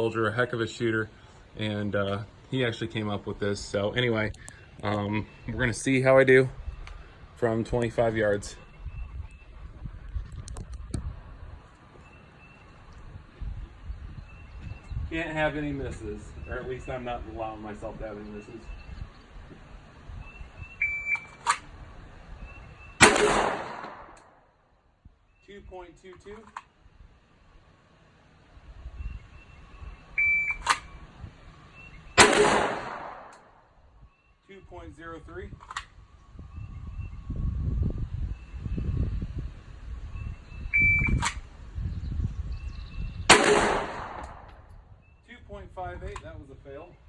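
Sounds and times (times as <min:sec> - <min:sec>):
pistol shots: 0:23.0 - 0:24.3, 0:32.2 - 0:33.6, 0:43.3 - 0:44.6
shot timer beep: 0:30.2 - 0:30.7, 0:40.7 - 0:41.2.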